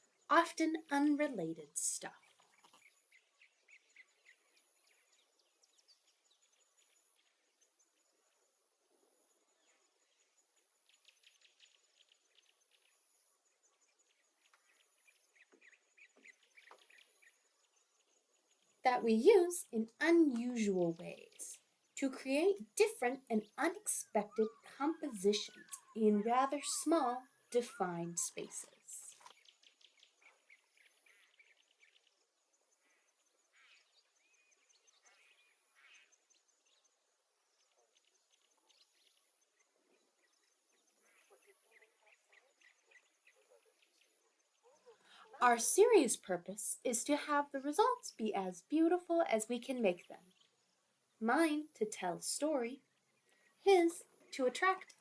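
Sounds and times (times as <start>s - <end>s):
faint bird chirps: 0.0s - 55.0s
thin insect-like trill: 2.1s - 19.2s.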